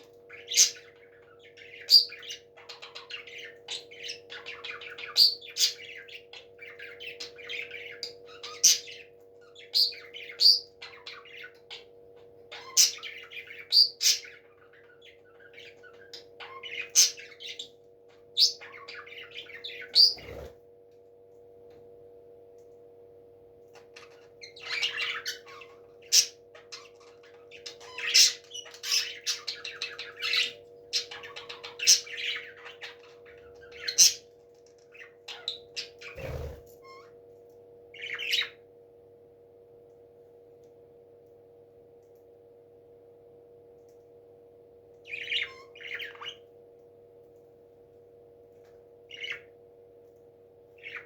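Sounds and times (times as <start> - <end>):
parrots chirping and squawking: 0.3 - 17.7, 18.4 - 20.6, 23.8 - 37.2, 45.1 - 46.4, 49.1 - 49.5, 50.8 - 51.0.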